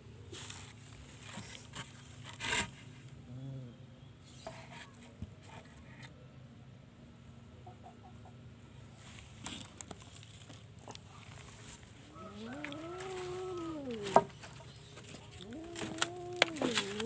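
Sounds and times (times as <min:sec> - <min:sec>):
rubbing and rustling: 0:08.9 - 0:17.0.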